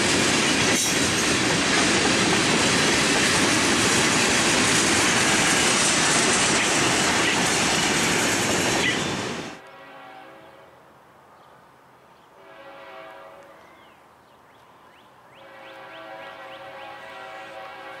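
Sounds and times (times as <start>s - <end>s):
train wheels rumbling on rail: 0.0s - 9.6s
distant locomotive chime horn: 9.0s - 10.8s, 12.4s - 13.9s, 15.4s - 18.0s.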